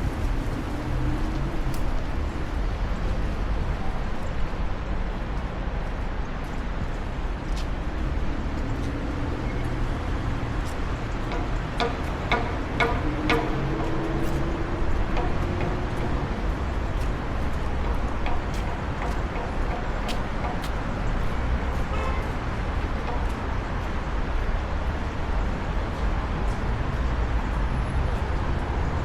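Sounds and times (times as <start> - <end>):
street traffic rumble: 0.0 - 29.0.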